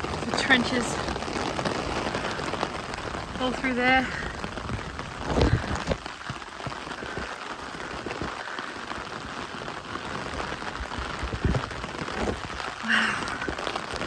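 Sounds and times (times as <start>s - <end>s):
steady rain hissing: 0.0s - 14.0s.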